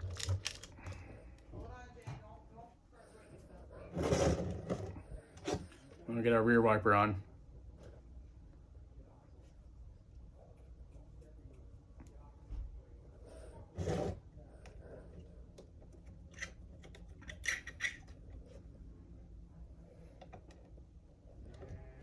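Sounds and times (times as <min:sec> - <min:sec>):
scrape on workbench: 0:13.7 - 0:14.2.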